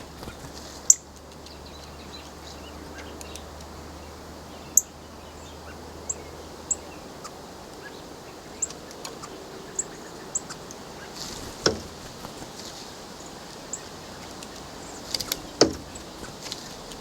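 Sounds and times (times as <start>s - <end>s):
steady outdoor hiss: 0.0s - 17.0s
faint clicks: 3.0s - 3.8s, 13.4s - 17.0s.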